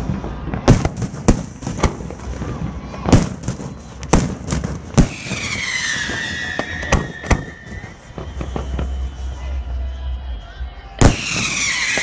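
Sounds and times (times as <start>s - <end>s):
whistling firework: 0.0s - 12.0s
firework shells bursting: 3.1s - 8.9s.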